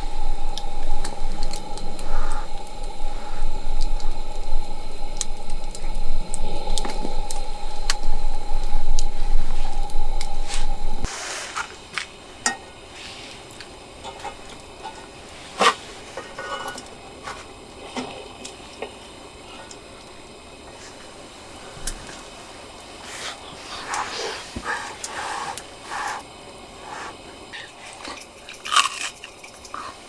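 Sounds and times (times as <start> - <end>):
loud steady hum with rumble: 0.0 - 11.1.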